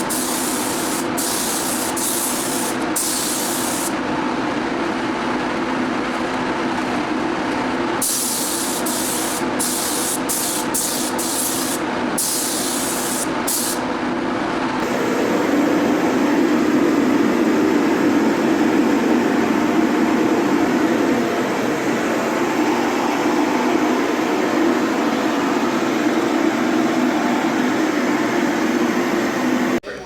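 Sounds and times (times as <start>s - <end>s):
spray gun hissing bursts: 0.0s - 4.0s, 8.0s - 13.9s
machine hum: 0.0s - 29.8s.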